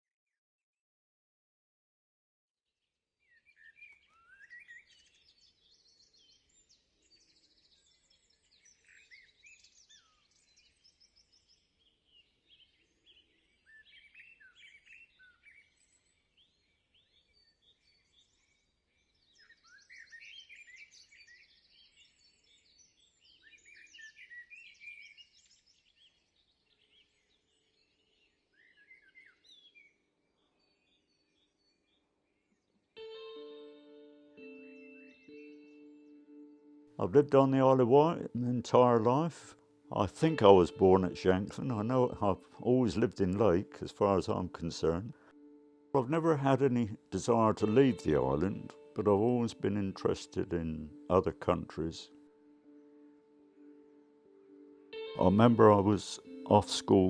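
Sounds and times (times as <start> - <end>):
songbirds chirping and warbling: 3.2 - 33.0, 34.9 - 45.4, 46.0 - 57.0.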